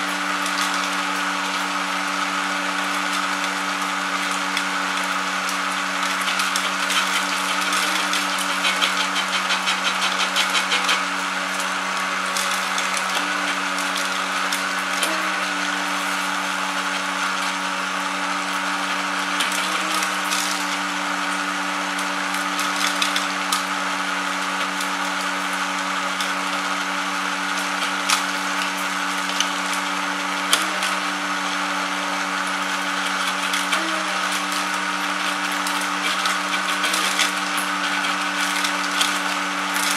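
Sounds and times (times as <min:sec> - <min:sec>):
machine motor hum: 0:00.0 - 0:39.9.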